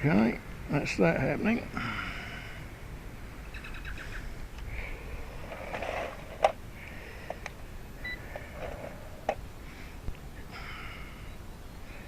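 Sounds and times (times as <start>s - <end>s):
wind rumbling on microphone: 1.5s - 10.6s.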